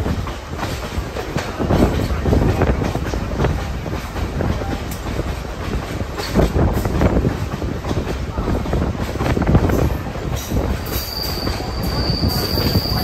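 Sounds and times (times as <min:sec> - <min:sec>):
railroad car rumbling: 0:00.0 - 0:13.0.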